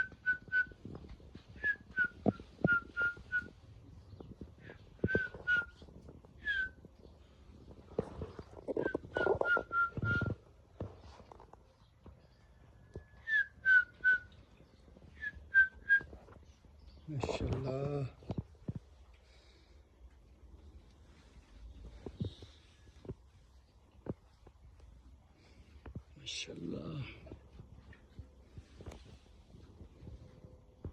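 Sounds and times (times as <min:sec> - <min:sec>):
person whistling short notes: 0:05.1 - 0:05.8, 0:06.4 - 0:06.8, 0:08.8 - 0:10.4.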